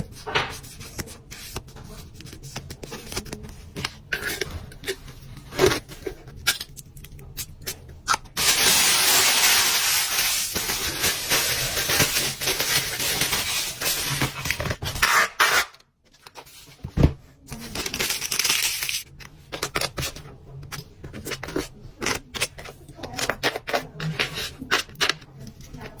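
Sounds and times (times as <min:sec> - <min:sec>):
packaging being handled: 0:08.4 - 0:16.9, 0:17.5 - 0:20.2.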